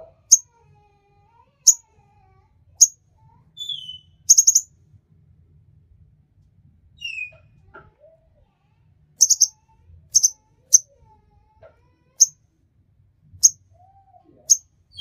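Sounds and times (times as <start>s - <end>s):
bird chirping: 3.6s - 4.7s, 9.2s - 10.8s.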